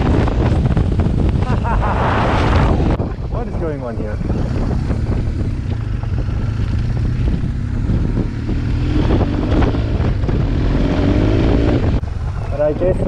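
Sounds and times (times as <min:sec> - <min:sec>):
wind rumble on microphone: 0:00.0 - 0:13.0
motorcycle engine running: 0:03.1 - 0:13.0.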